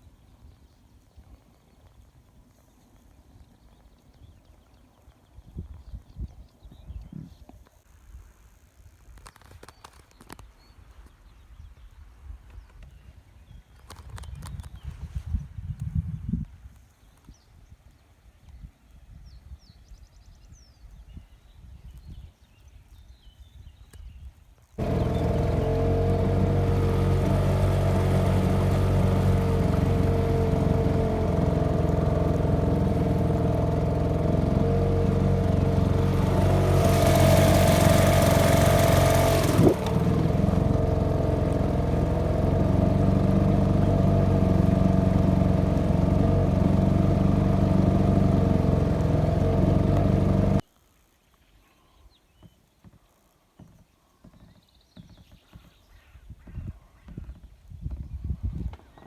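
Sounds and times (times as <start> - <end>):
engine drone: 24.8 - 50.6.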